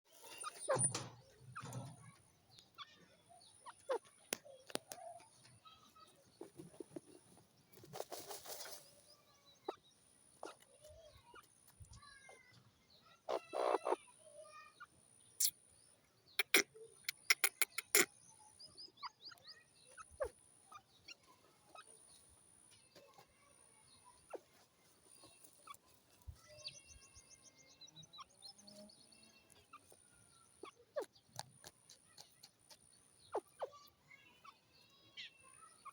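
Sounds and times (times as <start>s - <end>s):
faint bird calls: 0.2s - 7.1s, 7.8s - 15.6s, 16.3s - 22.2s, 23.0s - 35.9s
francolin calls: 13.3s - 14.0s.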